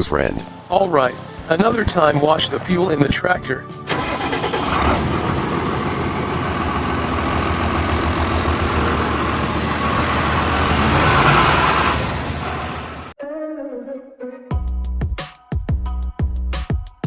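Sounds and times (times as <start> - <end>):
heavy vehicle engine rumbling: 3.8 - 13.2.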